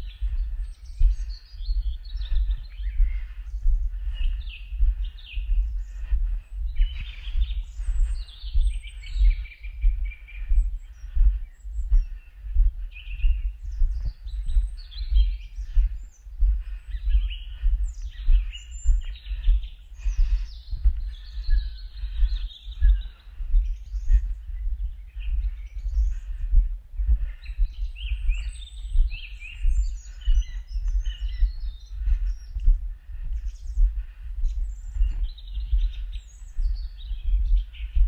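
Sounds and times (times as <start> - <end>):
small birds singing and chirping: 0.0 - 38.0.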